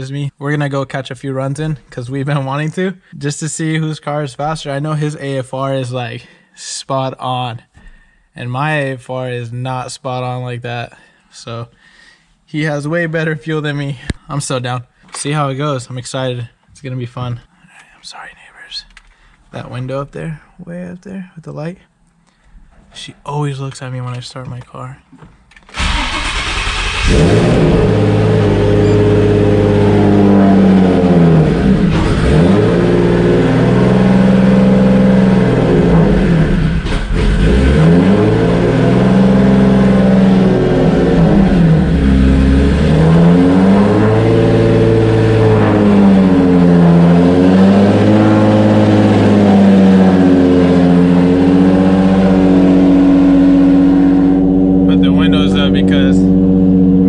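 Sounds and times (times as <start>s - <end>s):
car engine starting and revving: 25.7s - 57.0s.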